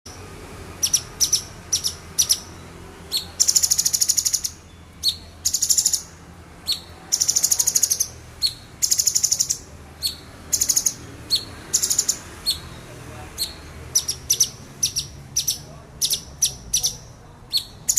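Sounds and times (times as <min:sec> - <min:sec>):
bird chirps and trills: 0:00.1 - 0:17.9.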